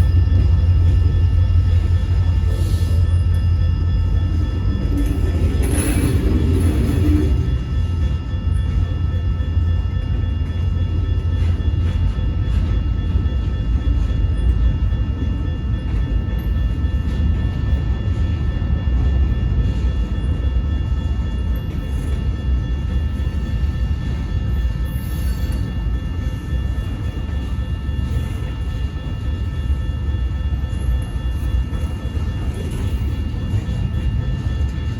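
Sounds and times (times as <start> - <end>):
freight train rumbling past: 0.0 - 34.9
steady high ringing tones: 0.0 - 34.9.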